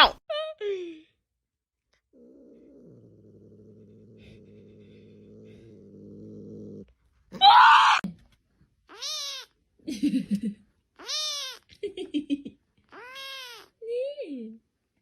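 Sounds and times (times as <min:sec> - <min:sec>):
cat growling: 0:02.1 - 0:08.0
cat yowling: 0:07.4 - 0:08.0, 0:08.9 - 0:09.5, 0:11.0 - 0:11.6, 0:12.9 - 0:13.7
cat meowing: 0:08.9 - 0:09.6, 0:11.0 - 0:11.7, 0:12.9 - 0:13.8.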